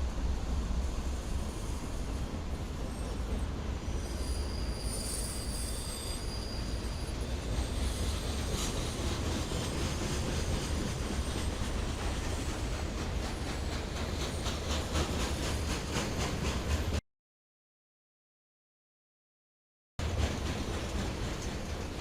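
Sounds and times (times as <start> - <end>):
train rumbling past: 0.0 - 17.0, 20.0 - 22.0
high-pitched wheel squeals: 3.9 - 7.8.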